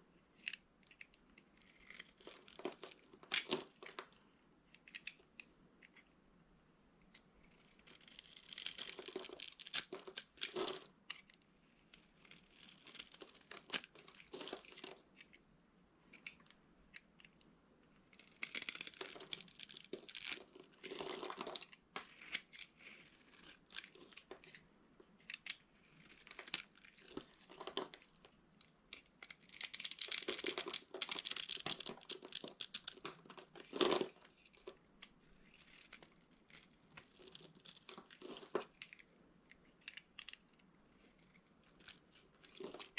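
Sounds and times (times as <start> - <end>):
soap crunching and crackling: 0.4 - 4.0, 7.5 - 10.8, 11.8 - 15.3, 18.1 - 24.6, 25.2 - 28.3, 28.9 - 34.8, 35.4 - 39.0, 41.1 - 42.9.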